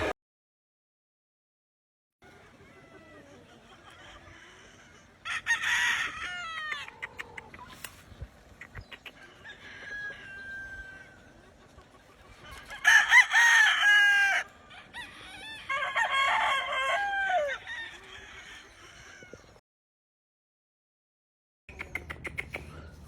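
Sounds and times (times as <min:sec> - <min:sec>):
roosters crowing: 0:02.3 - 0:07.7, 0:08.8 - 0:19.6.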